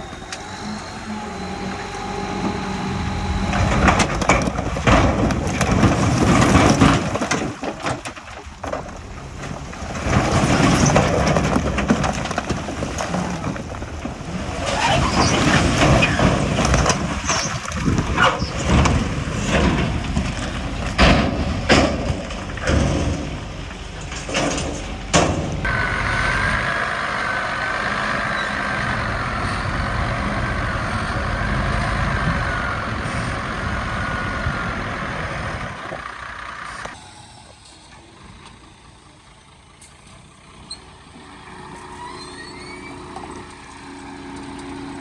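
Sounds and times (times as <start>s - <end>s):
heavy machinery diesel engine: 0.0s - 45.0s
rock crunching and knocking: 1.9s - 25.7s.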